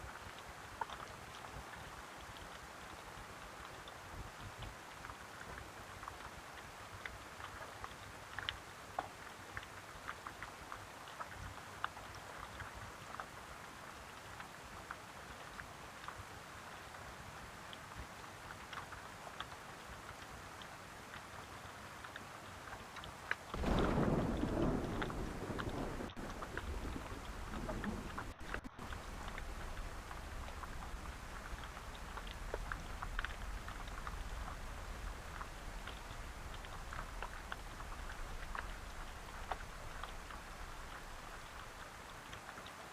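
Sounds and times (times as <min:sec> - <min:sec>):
raindrops ticking: 0:00.0 - 0:42.9
rain hissing: 0:23.4 - 0:42.9
low rumble: 0:23.6 - 0:41.4.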